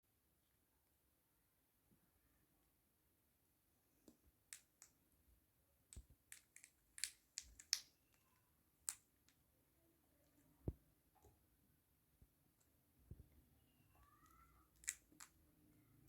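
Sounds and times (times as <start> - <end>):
small sharp clicks and taps: 5.9 - 9.4, 14.2 - 15.4.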